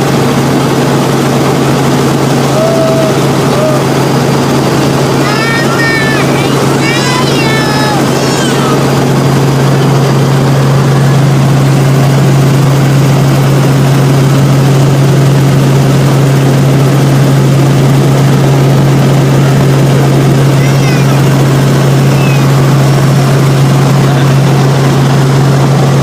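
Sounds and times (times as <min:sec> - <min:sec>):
helicopter rotor and engine drone: 0:00.0 - 0:26.0.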